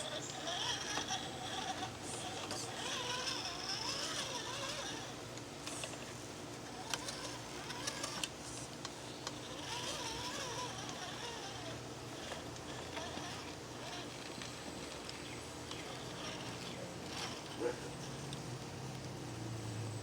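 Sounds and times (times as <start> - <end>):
faint voices: 0.0 - 6.1
truck engine running at low revs: 15.6 - 20.0.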